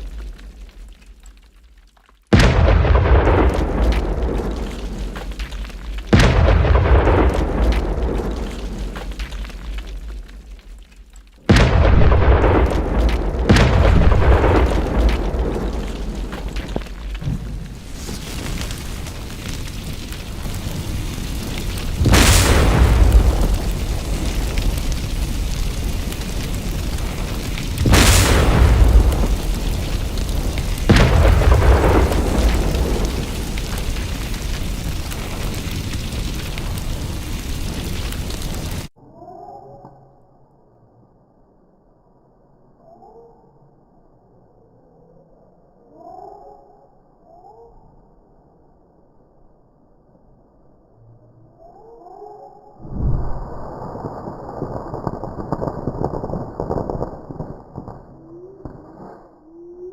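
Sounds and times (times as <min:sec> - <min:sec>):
pyrotechnic charge bang: 0:02.3 - 0:09.8, 0:11.5 - 0:38.4
low rumble: 0:02.3 - 0:38.9, 0:52.8 - 0:58.6.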